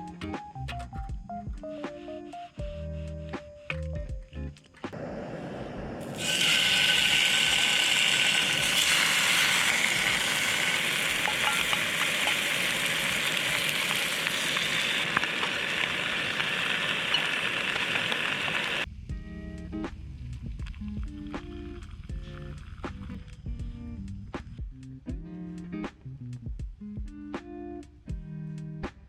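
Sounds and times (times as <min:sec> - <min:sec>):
food sizzling in a pan: 0:06.0 - 0:18.9
small pops of frying: 0:06.0 - 0:18.9.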